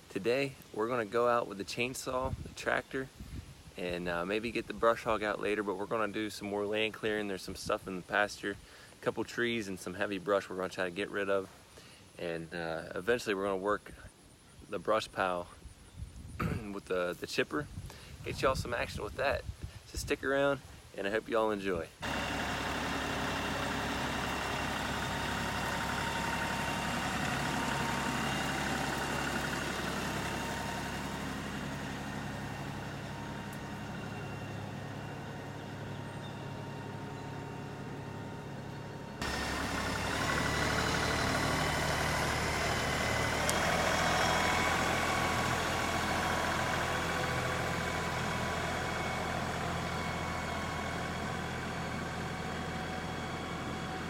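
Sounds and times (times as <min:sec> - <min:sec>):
tractor diesel engine running: 0:22.0 - 0:54.0.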